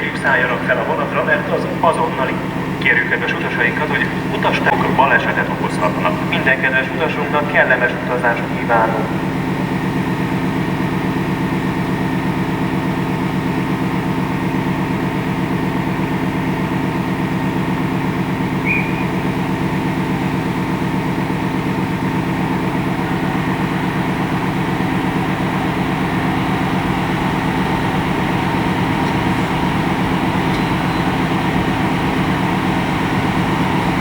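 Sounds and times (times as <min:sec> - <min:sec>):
diesel engine idling: 0:00.0 - 0:34.0
steady higher hum: 0:00.0 - 0:34.0
short high chirp: 0:18.6 - 0:19.2.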